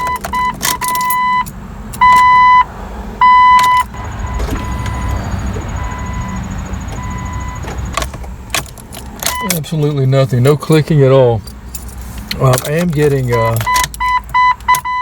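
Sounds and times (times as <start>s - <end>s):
dashboard warning chime beeping: 0.0s - 8.5s, 9.2s - 9.9s, 13.2s - 15.0s
low rumble: 3.8s - 8.5s.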